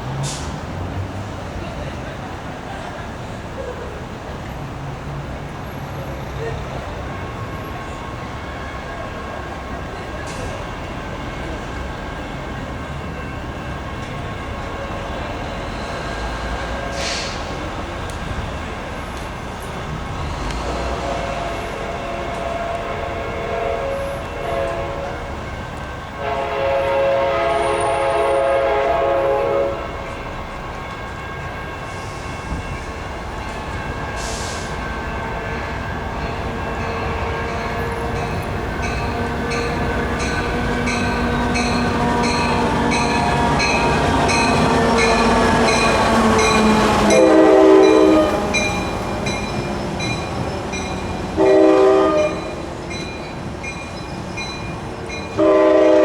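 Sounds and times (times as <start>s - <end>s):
train passing by: 0.0s - 56.0s
train horn blasts: 20.2s - 25.4s, 26.1s - 30.5s, 31.2s - 49.7s, 50.8s - 52.7s, 55.3s - 56.0s.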